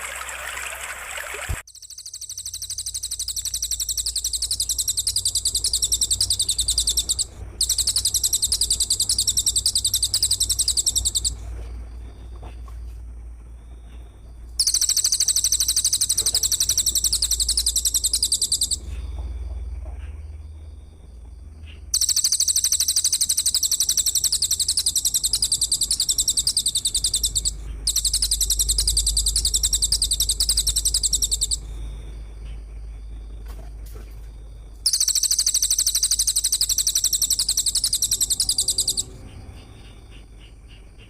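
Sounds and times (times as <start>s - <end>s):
water trickling: 0.0s - 1.6s
high pulsing buzzy trill: 22.0s - 31.6s.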